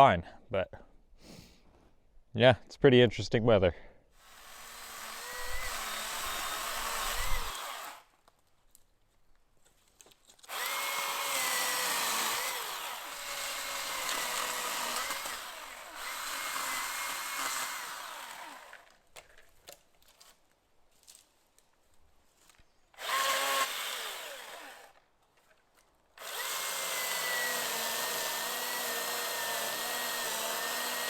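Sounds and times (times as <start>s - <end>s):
chainsaw cutting branches: 4.2s - 8.1s, 10.4s - 19.1s, 23.0s - 25.0s, 26.2s - 31.0s.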